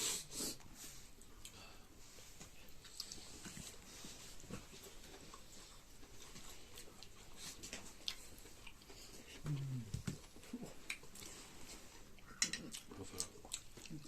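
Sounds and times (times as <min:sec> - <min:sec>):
chewing and tearing chicken: 0:02.8 - 0:09.2, 0:10.3 - 0:14.0.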